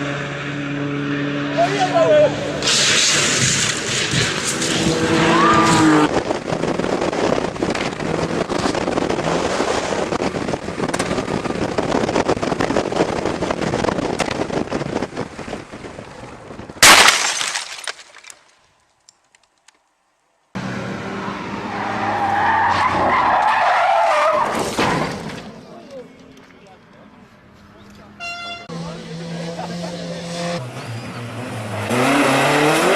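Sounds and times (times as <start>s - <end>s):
vehicle crash crackling and scraping: 2.6s - 11.2s, 14.0s - 18.6s, 24.0s - 25.7s
loud crash bang: 16.8s - 18.2s.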